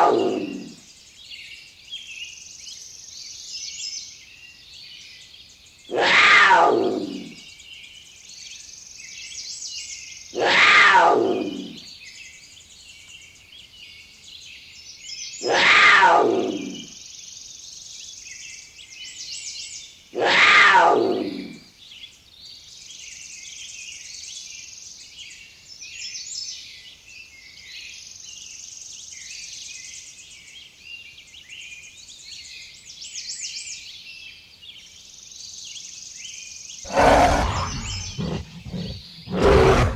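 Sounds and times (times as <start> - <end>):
birds chattering: 36.9 - 39.9.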